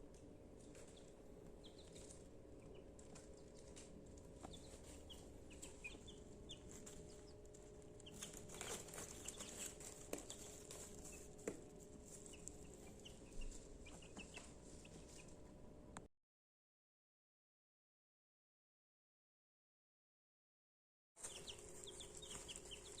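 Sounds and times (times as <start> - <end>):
faint steady hum: 0.0 - 16.1
chicks peeping: 0.6 - 15.6, 21.2 - 23.0
scratching in dry bedding: 8.1 - 15.3, 21.2 - 23.0.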